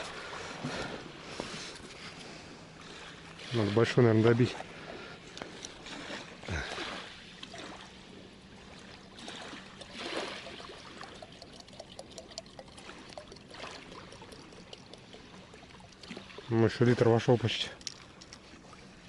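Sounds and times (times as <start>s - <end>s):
water running into bottle: 9.1s - 16.8s, 17.4s - 18.7s.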